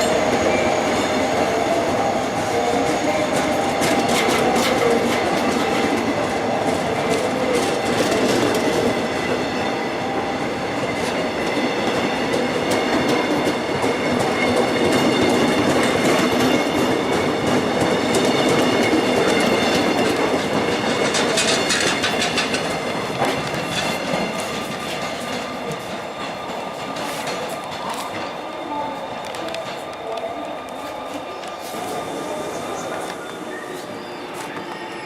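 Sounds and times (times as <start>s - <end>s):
rumble of wheels on rails: 0.0s - 35.0s
train wheels clattering over joints: 10.9s - 30.0s.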